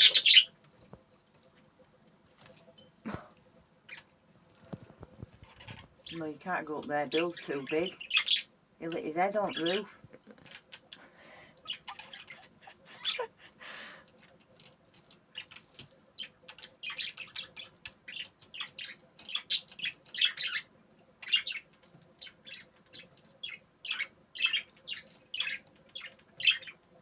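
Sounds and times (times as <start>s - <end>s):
budgerigars chattering: 0.0s - 0.5s, 5.4s - 11.0s, 16.2s - 21.6s, 22.2s - 26.8s.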